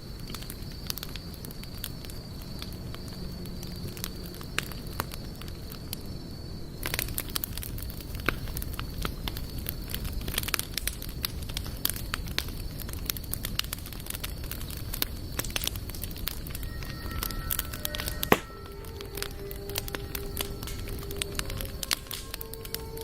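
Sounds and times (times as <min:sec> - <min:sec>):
campfire crackling and popping: 0:00.0 - 0:23.0
faint high whine: 0:15.7 - 0:23.0.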